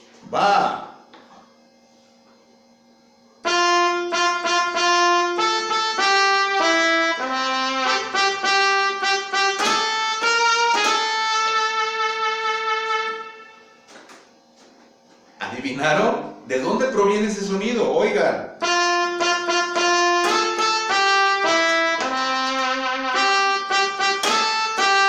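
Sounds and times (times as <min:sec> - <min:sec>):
solo trumpet melody: 0:03.4 - 0:14.0, 0:18.6 - 0:25.0.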